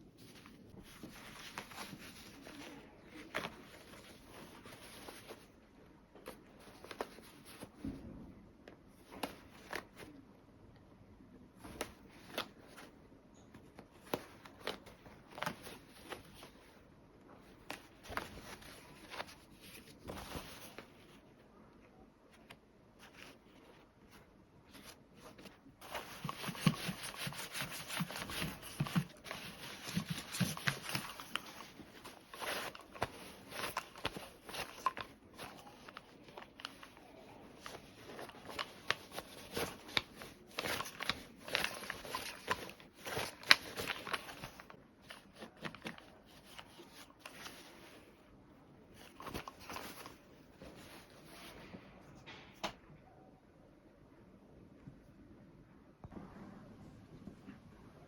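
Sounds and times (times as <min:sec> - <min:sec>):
cloth rustling: 0:00.0 - 0:07.8, 0:11.6 - 0:21.4, 0:22.3 - 0:51.8.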